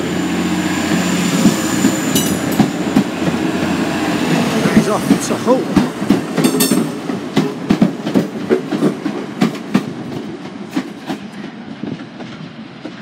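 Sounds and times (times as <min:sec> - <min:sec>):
train diesel engine running: 0:00.0 - 0:13.0
wheels clicking over rail joints: 0:01.4 - 0:03.4, 0:04.8 - 0:13.0.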